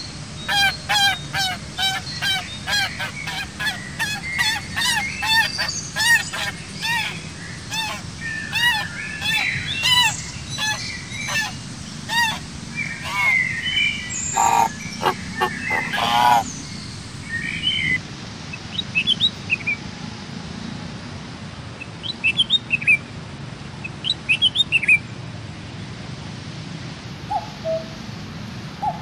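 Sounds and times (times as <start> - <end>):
birds calling: 0.0 - 18.0
steady low hum: 0.0 - 18.0
high bird chirps: 0.5 - 18.0.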